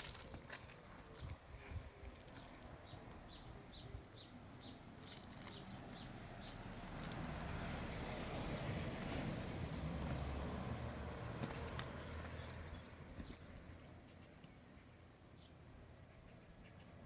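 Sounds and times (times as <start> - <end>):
small bird chirping: 2.4 - 7.7.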